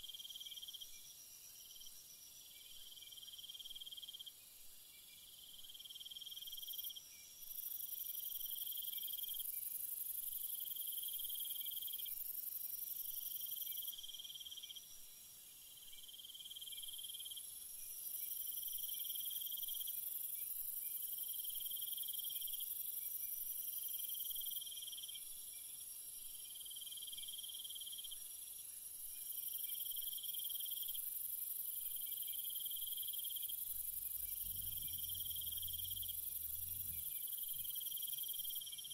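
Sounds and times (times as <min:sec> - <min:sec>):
night insects trilling: 0:15.7 - 0:38.9
constant hiss: 0:28.4 - 0:38.9
pulsing insect call: 0:31.7 - 0:38.9.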